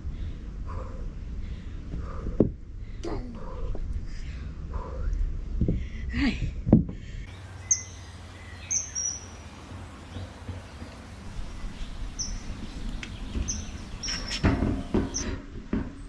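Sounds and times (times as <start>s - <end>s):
small bird chirping: 7.3s - 15.2s.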